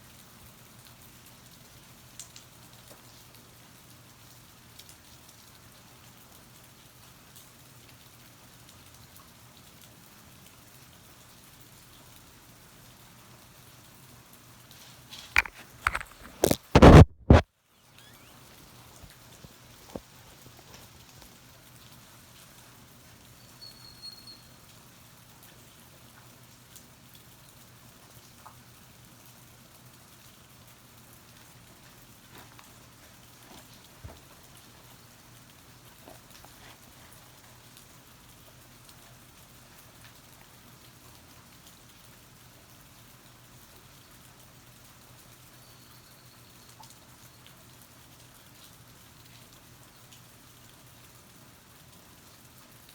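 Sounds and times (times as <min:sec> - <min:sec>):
light rain hiss: 0:00.0 - 0:52.9
water drips: 0:02.0 - 0:03.4.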